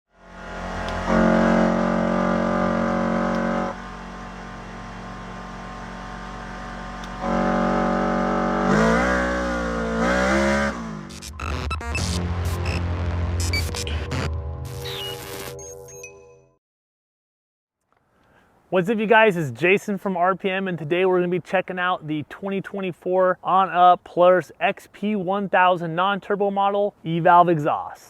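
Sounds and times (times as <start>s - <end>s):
side-by-side engine revving: 0.1s - 11.6s
choppy intro sound effects: 10.8s - 15.6s.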